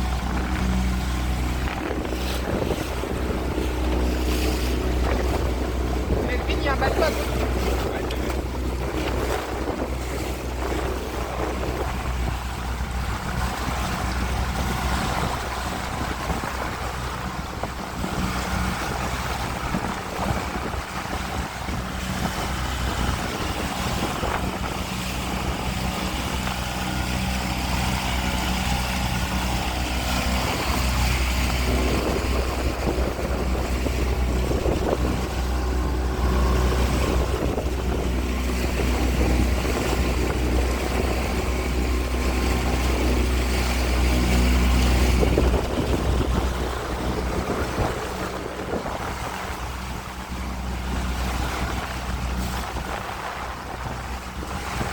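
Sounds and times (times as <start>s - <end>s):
outboard motor running: 0.0s - 54.9s
water rushing past hull: 0.0s - 54.9s
wind buffeting microphone: 0.0s - 54.9s.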